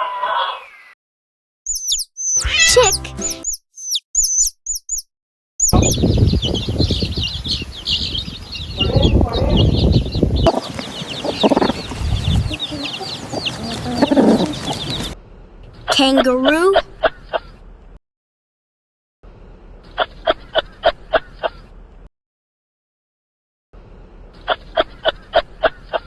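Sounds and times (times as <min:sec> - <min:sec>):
chicks peeping: 0:05.6 - 0:15.2
scuffling and rustling: 0:06.6 - 0:15.2.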